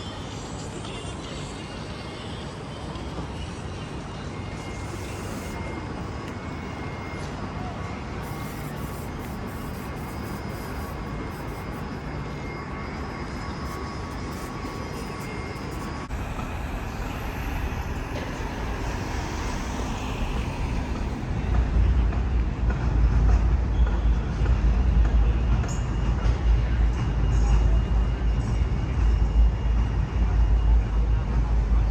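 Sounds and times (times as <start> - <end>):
city traffic noise: 0.0 - 31.9
large vehicle passing: 16.1 - 22.6.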